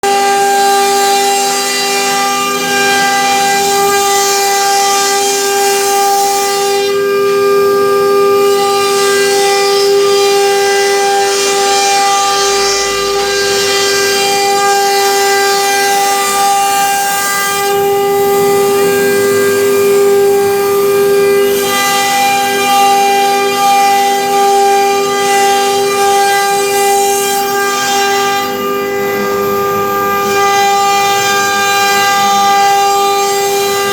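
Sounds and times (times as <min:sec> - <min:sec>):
router spindle whine: 0:00.0 - 0:33.9.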